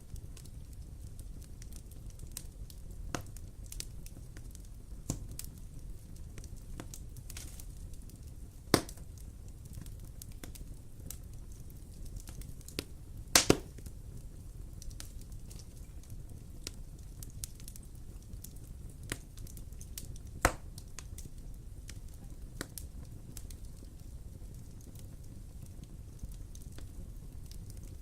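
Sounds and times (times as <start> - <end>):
fire crackling: 0.0 - 28.0
fire rumbling: 0.0 - 28.0
loud pops of burning wood: 0.1 - 28.0.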